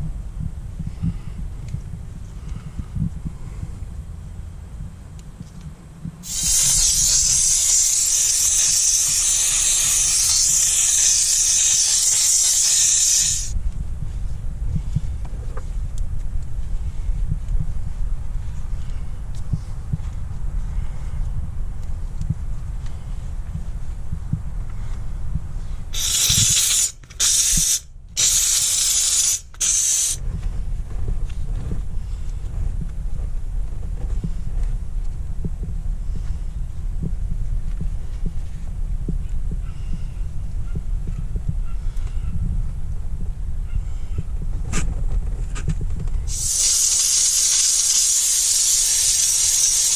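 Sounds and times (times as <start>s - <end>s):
steam cleaner hissing: 6.2s - 13.5s, 26.0s - 30.2s, 46.3s - 49.9s.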